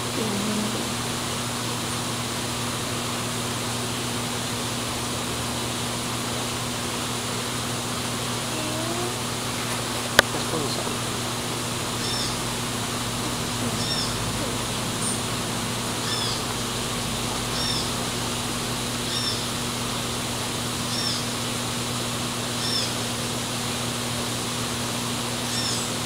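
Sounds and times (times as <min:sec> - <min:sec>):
steady hiss: 0:00.0 - 0:26.0
low hum: 0:08.4 - 0:22.2.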